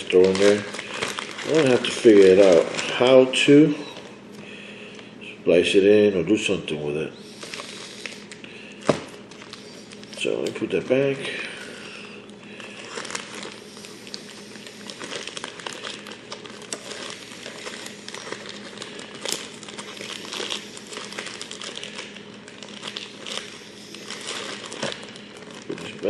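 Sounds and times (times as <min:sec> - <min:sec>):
plastic packaging crinkling: 0:00.0 - 0:05.1, 0:06.8 - 0:26.0.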